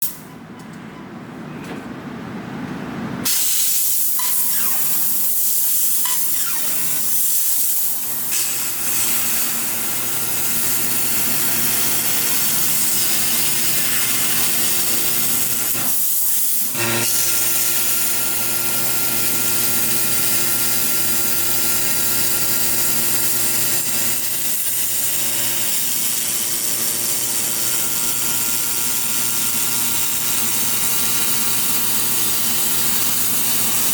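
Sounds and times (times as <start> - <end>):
laser cutter gas hiss: 3.2 - 33.9
machine hum: 4.2 - 16.0.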